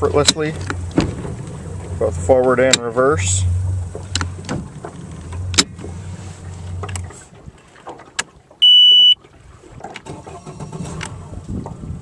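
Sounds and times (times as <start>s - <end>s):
outboard engine idling: 0.0s - 12.0s
high electronic beep: 8.6s - 9.2s.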